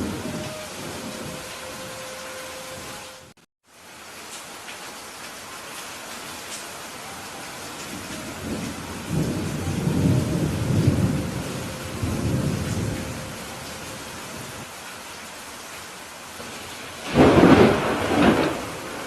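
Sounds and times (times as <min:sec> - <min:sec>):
steady rain: 0:00.0 - 0:19.0
thunder rolling: 0:07.9 - 0:14.6, 0:16.4 - 0:19.0.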